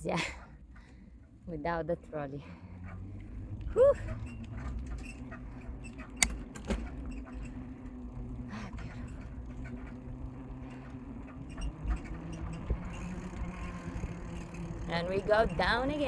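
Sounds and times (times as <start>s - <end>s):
bicycle creaking: 0.2s - 16.0s
sharp click: 6.2s - 6.8s.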